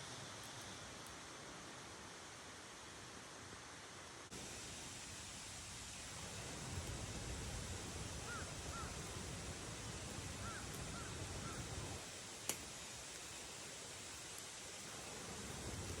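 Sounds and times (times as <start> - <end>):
outdoor noise hiss: 0.0 - 16.0
bird calls: 10.4 - 11.7.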